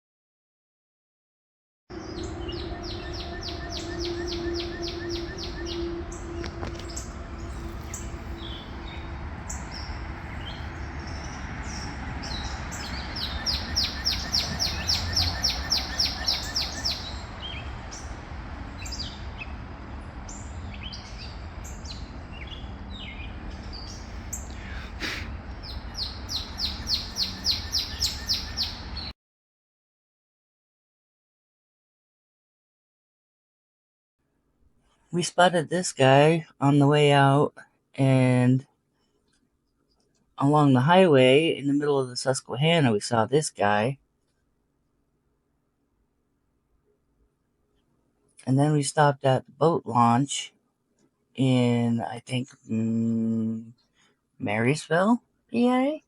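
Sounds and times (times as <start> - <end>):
songbird trill: 1.9 - 29.1
birds giving short calls: 2.0 - 18.1, 20.3 - 29.1
steady low rumble: 2.0 - 29.1.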